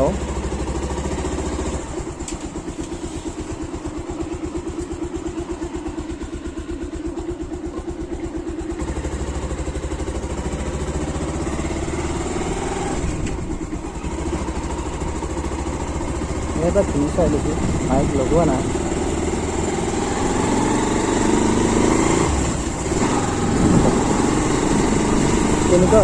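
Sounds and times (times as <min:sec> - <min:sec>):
motorcycle engine idling and accelerating: 0:00.0 - 0:26.0
wind rumble on microphone: 0:22.8 - 0:26.0.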